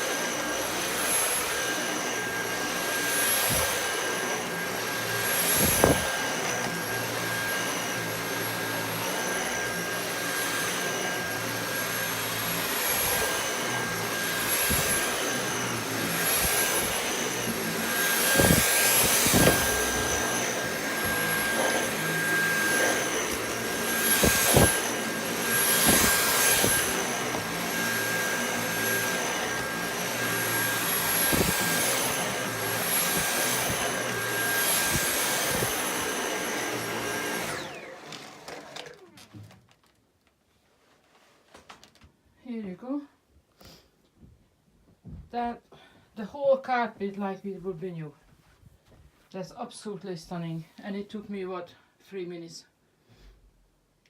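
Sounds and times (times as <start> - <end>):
vacuum cleaner whine: 0.0 - 39.6
vacuum head knocking: 18.1 - 28.2.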